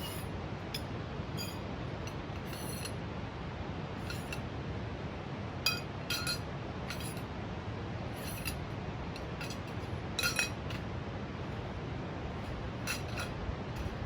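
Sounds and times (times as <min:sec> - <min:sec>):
low background rush: 0:00.0 - 0:14.0
metal gear clinking: 0:04.1 - 0:04.4, 0:05.7 - 0:07.2, 0:08.2 - 0:08.6, 0:09.2 - 0:10.8, 0:12.9 - 0:14.0.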